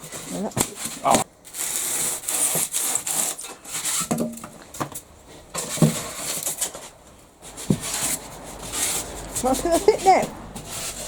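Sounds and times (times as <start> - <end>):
wood scraping strokes: 0.0 - 11.0.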